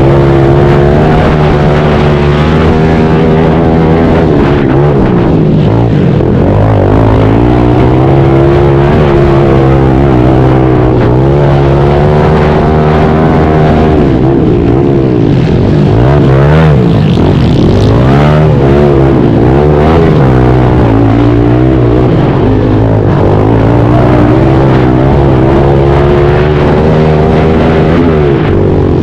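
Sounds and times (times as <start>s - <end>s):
pit bike engine revving: 0.0s - 29.0s.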